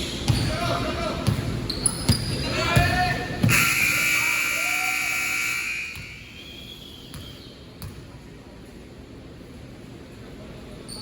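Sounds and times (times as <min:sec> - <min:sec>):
scoreboard buzzer: 0:03.5 - 0:06.1.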